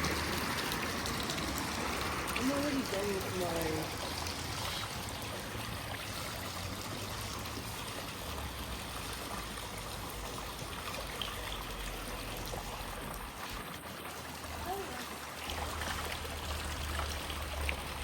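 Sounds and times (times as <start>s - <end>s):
waterfall trickling: 0.0s - 18.0s.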